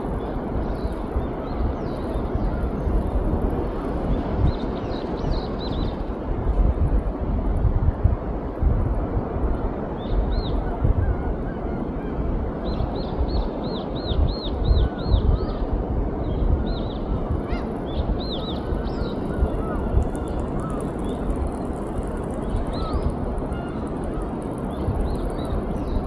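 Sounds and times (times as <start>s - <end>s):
wind: 0.0s - 26.0s
faint low bird calls: 16.4s - 26.0s.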